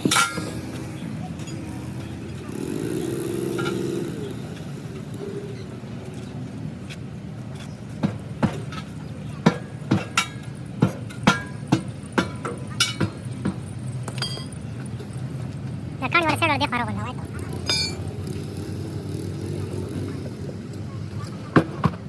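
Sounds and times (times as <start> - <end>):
sharp metal knocks and clinks: 0.0 - 1.7, 8.0 - 15.3, 17.6 - 18.4.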